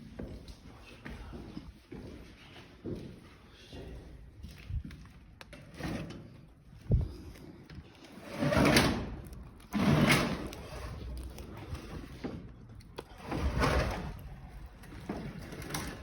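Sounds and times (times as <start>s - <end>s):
heavy door scraping: 8.1s - 12.5s, 13.1s - 16.0s.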